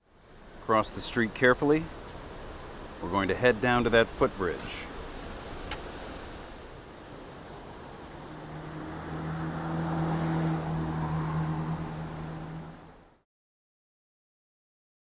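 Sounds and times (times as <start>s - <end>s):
vehicle driving past: 7.3s - 13.2s.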